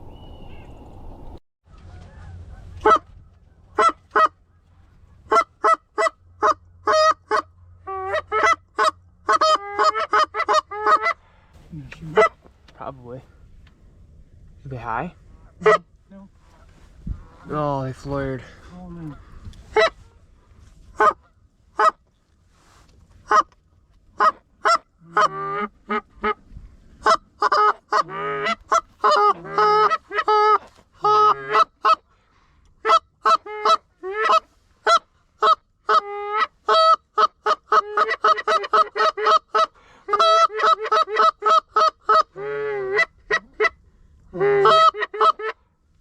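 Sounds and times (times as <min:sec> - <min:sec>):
goose calls honking and clucking: 0:01.7 - 0:11.2, 0:12.1 - 0:12.4, 0:15.4 - 0:15.9, 0:19.0 - 0:20.2, 0:20.9 - 0:22.0, 0:23.2 - 0:23.6, 0:24.2 - 0:26.4, 0:27.0 - 0:32.1, 0:32.8 - 0:45.6.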